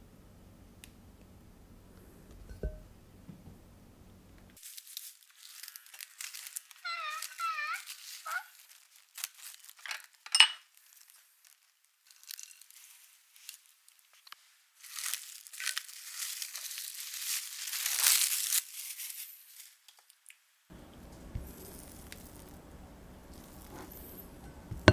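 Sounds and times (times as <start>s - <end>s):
plastic wrap crinkling and tearing: 4.6s - 20.3s, 21.5s - 22.6s.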